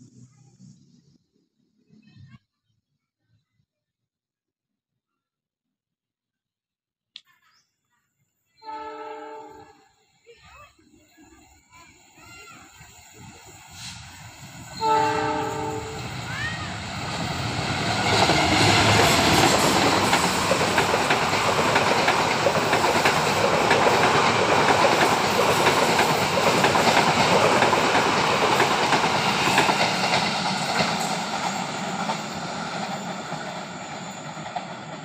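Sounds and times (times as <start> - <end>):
train wheels clacking on rails: 12.2 - 35.0.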